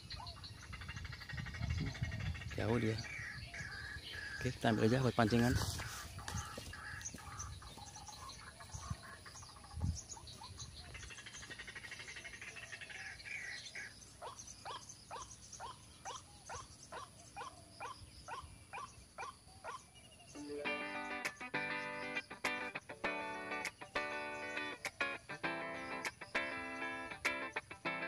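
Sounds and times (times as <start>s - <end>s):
faint background bird chorus: 0.0s - 28.0s
waterhen calling: 3.1s - 9.4s.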